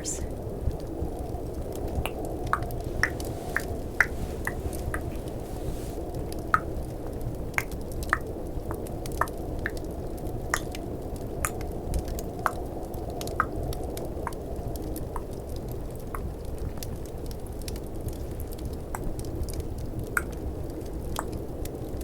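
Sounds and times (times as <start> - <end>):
snowstorm ambience: 0.0 - 7.8
fireplace crackling: 1.2 - 6.5.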